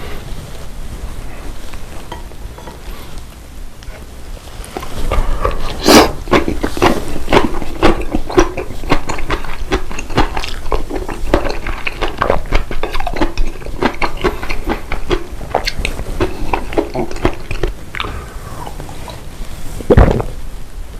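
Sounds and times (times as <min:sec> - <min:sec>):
wet chewing: 0:04.7 - 0:19.3.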